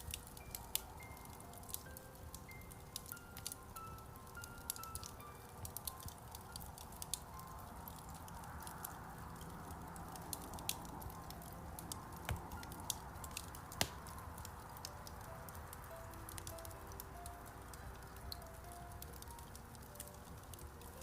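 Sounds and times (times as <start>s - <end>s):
wood fire crackling: 0.0s - 21.0s
loud wood snaps: 12.2s - 14.2s.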